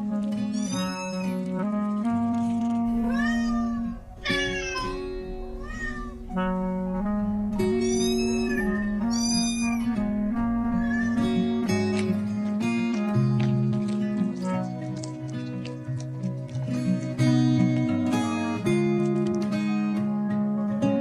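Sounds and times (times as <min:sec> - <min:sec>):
soft instrumental music: 0:00.0 - 0:21.0
cat meowing: 0:00.4 - 0:01.6, 0:02.9 - 0:06.7, 0:07.5 - 0:12.3.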